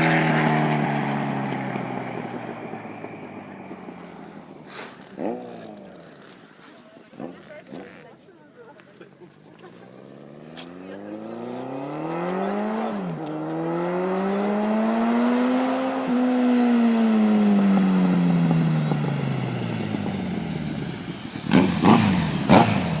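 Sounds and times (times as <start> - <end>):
motorcycle exhaust revving: 0.0 - 8.0, 9.8 - 23.0
sharp loud exhaust bursts: 19.8 - 23.0.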